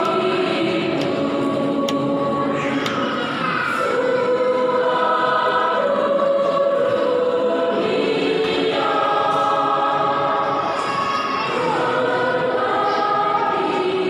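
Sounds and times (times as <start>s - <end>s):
choir singing a hymn: 0.0s - 14.0s.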